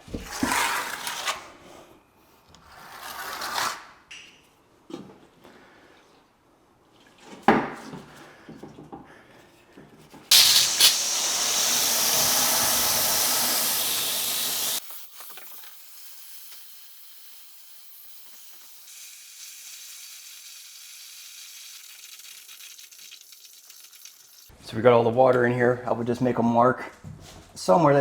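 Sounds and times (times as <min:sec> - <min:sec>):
water running into shower pan: 0:10.3 - 0:24.5.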